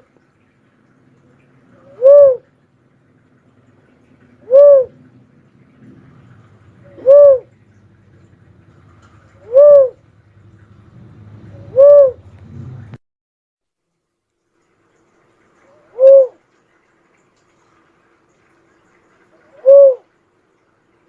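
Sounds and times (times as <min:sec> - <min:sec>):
dove hooting: 0:01.8 - 0:02.5, 0:04.3 - 0:05.1, 0:06.8 - 0:07.6, 0:09.3 - 0:10.1, 0:11.4 - 0:12.3, 0:15.6 - 0:16.4, 0:19.3 - 0:20.2.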